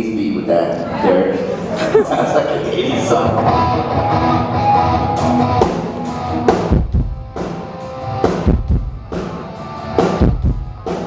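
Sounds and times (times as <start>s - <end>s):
live band playing: 2.7s - 11.0s.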